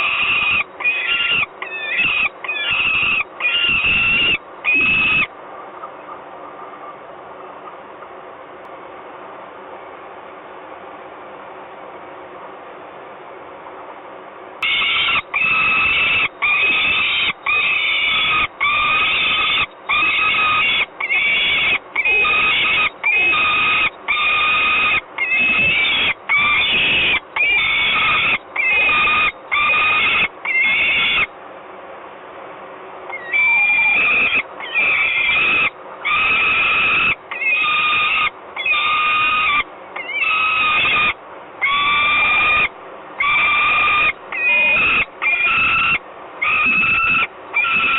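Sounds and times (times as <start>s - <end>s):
falcon wailing calls: 0.0s - 6.2s, 14.6s - 31.3s, 33.1s - 47.9s.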